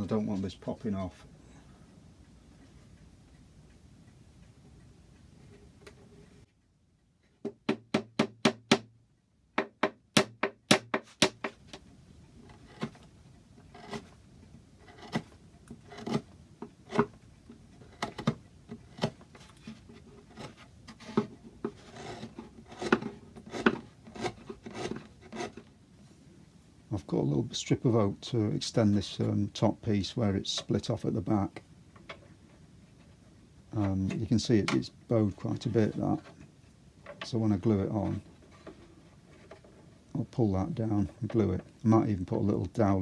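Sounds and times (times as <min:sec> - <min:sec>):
hammer tapping dowels into wood: 0:09.6 - 0:11.8
wood rubbing: 0:10.9 - 0:25.7, 0:30.2 - 0:42.6.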